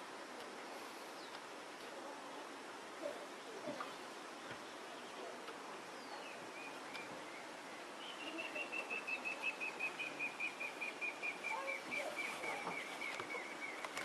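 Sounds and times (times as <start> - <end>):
bird chirping and trilling: 6.0 - 14.0.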